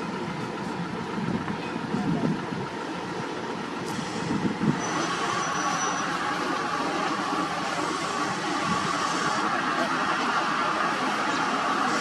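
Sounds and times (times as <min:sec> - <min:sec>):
road-paving machinery running: 0:00.0 - 0:12.0
thin high squeal: 0:04.8 - 0:06.2.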